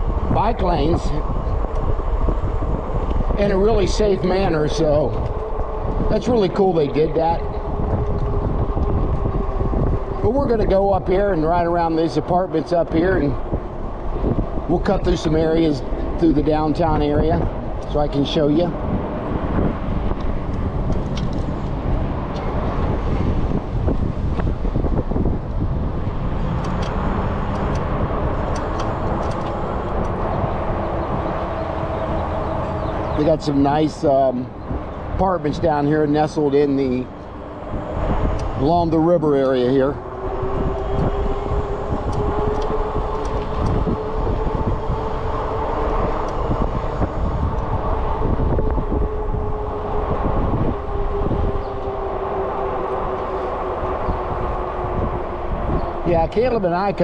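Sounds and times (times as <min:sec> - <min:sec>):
road noise: 0:00.0 - 0:57.0
wind buffeting microphone: 0:00.0 - 0:57.0
steady motor hum: 0:35.7 - 0:57.0.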